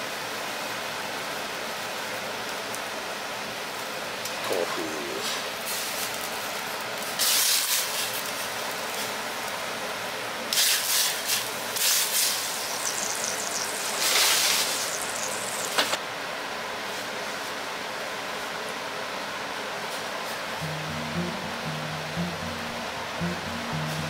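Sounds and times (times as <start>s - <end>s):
water boiling in a pan: 5.7s - 9.8s, 10.4s - 16.0s.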